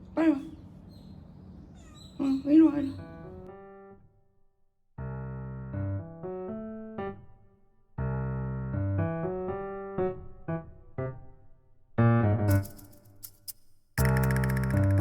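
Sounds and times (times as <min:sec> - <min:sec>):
slow piano melody: 0:02.8 - 0:04.3, 0:05.0 - 0:13.0.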